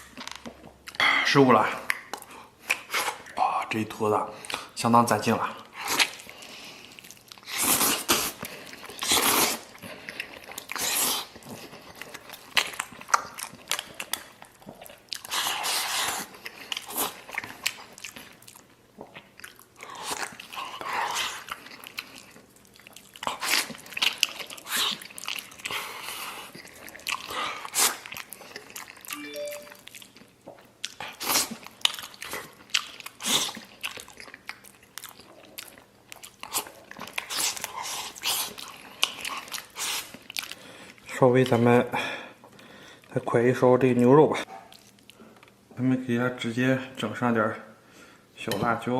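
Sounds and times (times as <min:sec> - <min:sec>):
chewing and crunching: 0:05.3 - 0:41.8, 0:44.4 - 0:45.6.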